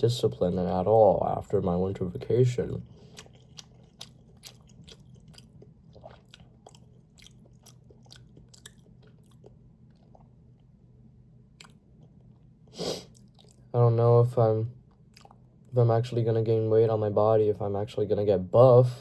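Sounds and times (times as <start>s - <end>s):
person chewing food: 2.7s - 13.7s, 14.8s - 15.7s.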